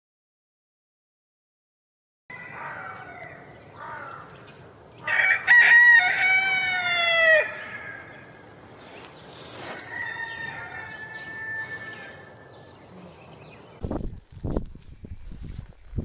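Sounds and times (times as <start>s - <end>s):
rooster crowing: 2.3s - 4.0s, 5.0s - 8.4s, 9.7s - 12.5s.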